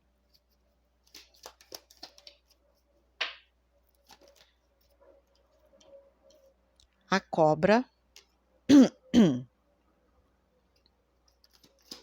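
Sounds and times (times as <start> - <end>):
paper cards clicking and rustling: 0.2 - 6.4, 10.8 - 12.0.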